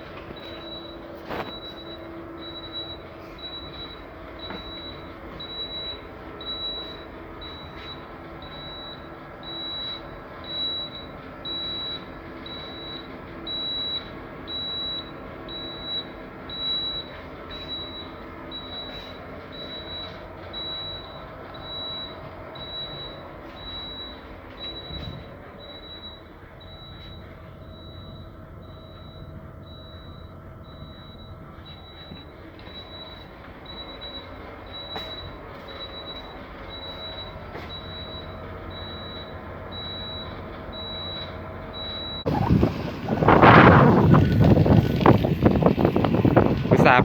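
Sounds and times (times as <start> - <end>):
machinery drone: 41.5 - 47.0.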